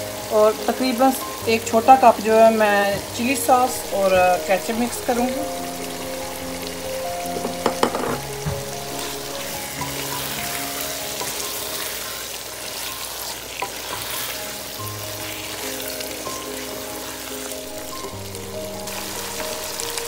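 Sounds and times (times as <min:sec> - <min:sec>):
chicken sizzling in a pot: 0:00.0 - 0:20.0
soft background music: 0:00.0 - 0:20.0
sharp knocks: 0:07.3 - 0:08.7.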